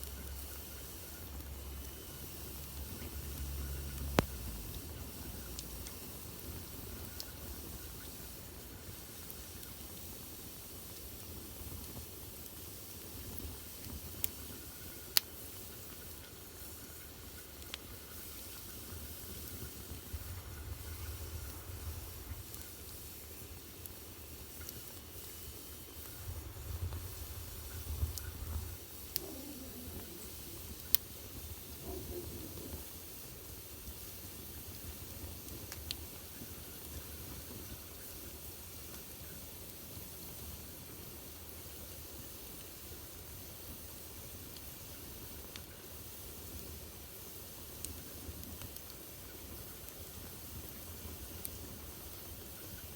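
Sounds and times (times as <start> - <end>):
sharp crackling pops: 0.0 - 33.3, 33.9 - 38.0
wood fire hissing and rumbling: 0.0 - 52.9.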